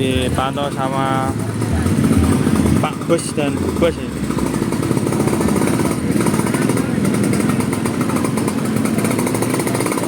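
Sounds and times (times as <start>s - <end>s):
bass-heavy sound system playback: 0.0s - 4.2s.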